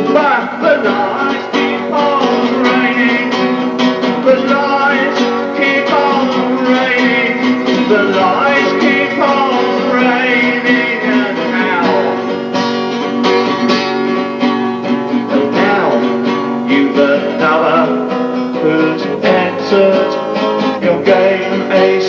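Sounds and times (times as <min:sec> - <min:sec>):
acoustic guitar strumming: 0:00.0 - 0:22.0
bending guitar melody: 0:00.0 - 0:22.0.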